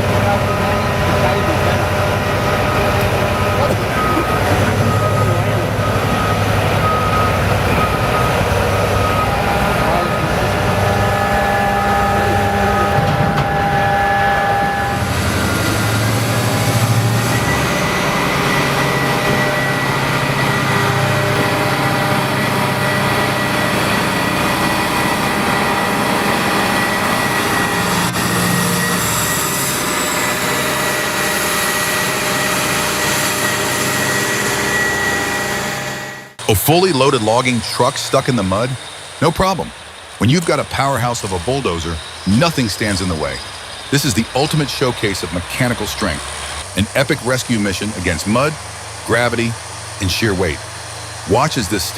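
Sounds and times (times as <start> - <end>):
heavy machinery running: 0.0 - 51.9
steady machine whine: 0.0 - 51.9.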